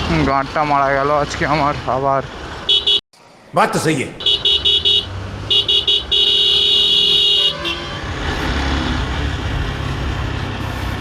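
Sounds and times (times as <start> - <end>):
low rumble of traffic: 0.0 - 11.0
vehicle horn tooting: 4.2 - 8.2.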